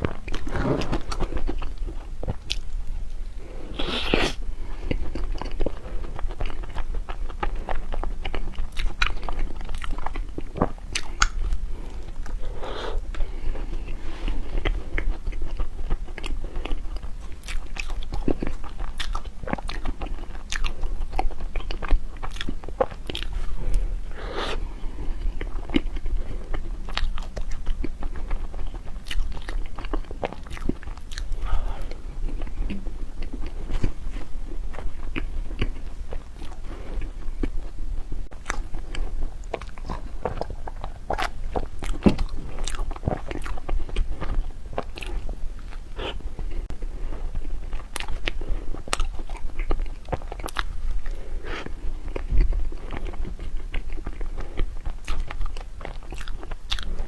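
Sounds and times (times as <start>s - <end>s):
biting and chewing: 0.0s - 2.9s, 3.9s - 23.9s, 24.5s - 57.0s.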